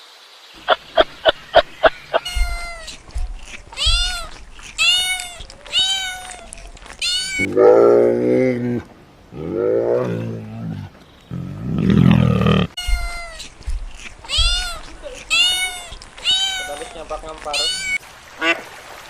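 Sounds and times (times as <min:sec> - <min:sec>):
animal short high calls: 0:00.6 - 0:07.5, 0:14.4 - 0:18.0
animal deep drawn-out call: 0:07.4 - 0:12.8.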